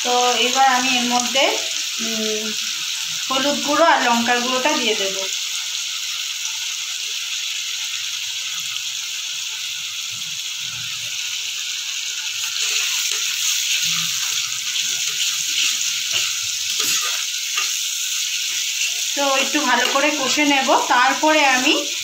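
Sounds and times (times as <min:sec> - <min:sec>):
food sizzling in hot oil: 0:00.0 - 0:22.0
spatula scraping pan: 0:12.4 - 0:20.4.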